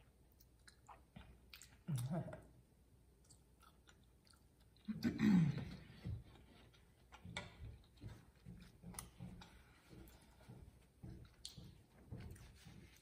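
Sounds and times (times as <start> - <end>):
closed-mouth chewing: 0.0 - 2.5, 3.2 - 5.0.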